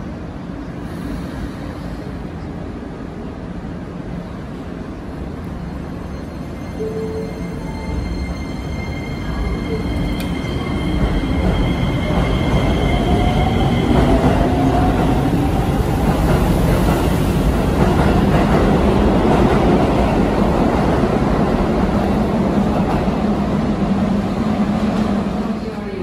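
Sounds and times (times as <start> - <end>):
train wheels on rails: 7.6 - 25.6.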